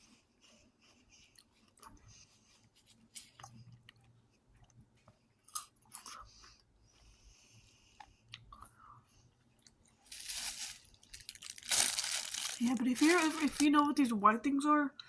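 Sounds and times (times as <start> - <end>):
chewing crunchy vegetable sticks: 1.1 - 6.6, 9.5 - 13.7.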